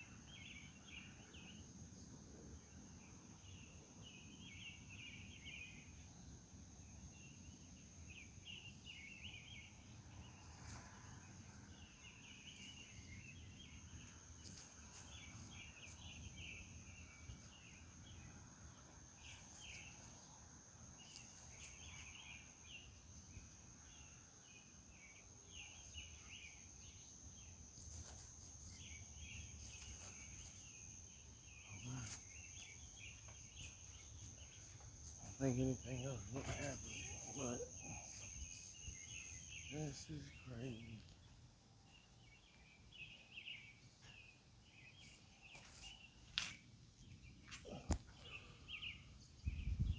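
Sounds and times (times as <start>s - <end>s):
insects trilling: 0.0s - 49.9s
raspy insect chirping: 10.2s - 41.0s.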